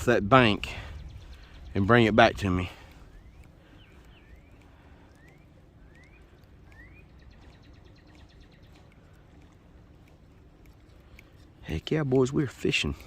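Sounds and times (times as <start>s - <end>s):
wind rumble: 0.0s - 9.1s
rapid faint ticks: 0.0s - 13.0s.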